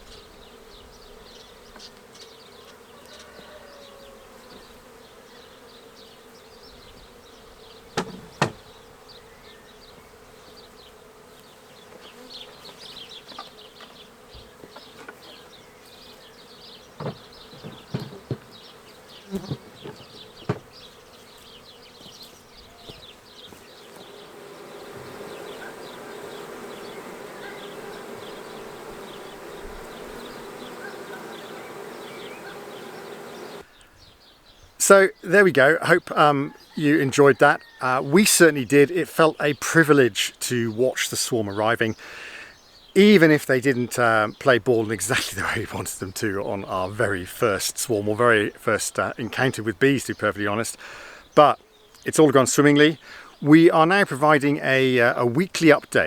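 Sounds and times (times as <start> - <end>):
bees buzzing: 0.0 - 33.9, 34.8 - 56.0
sharp knocks: 8.0 - 8.7, 17.0 - 18.5, 19.5 - 20.7.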